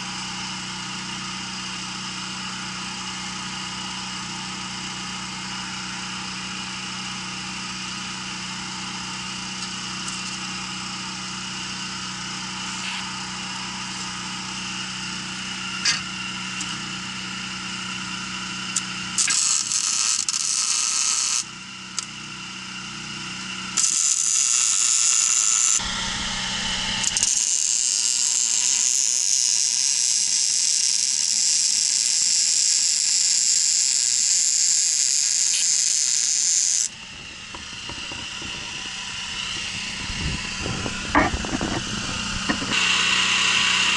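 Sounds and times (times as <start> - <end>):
welding arc hissing: 19.2 - 21.4, 23.8 - 43.9
machine hum: 25.4 - 29.6, 36.2 - 43.9.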